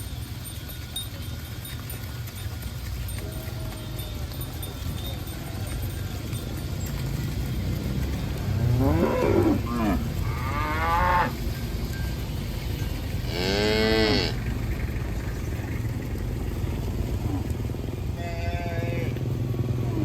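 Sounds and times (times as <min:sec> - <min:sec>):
cattle mooing: 0:07.8 - 0:11.4, 0:13.2 - 0:14.5, 0:16.8 - 0:20.0
steady low rumble: 0:14.0 - 0:18.2.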